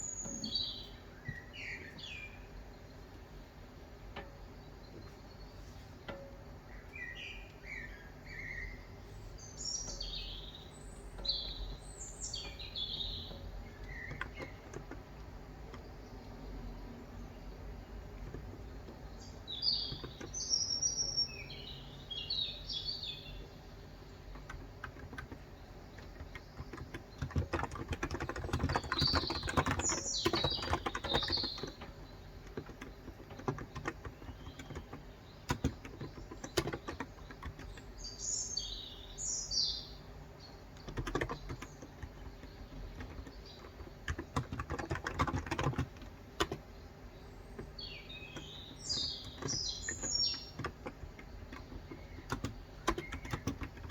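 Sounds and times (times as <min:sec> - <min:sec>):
birds chirping: 0:00.0 - 0:53.9
soft keyboard keystrokes: 0:12.4 - 0:15.9, 0:18.1 - 0:19.2, 0:19.8 - 0:20.4, 0:24.2 - 0:38.0, 0:40.7 - 0:46.7, 0:47.6 - 0:53.9.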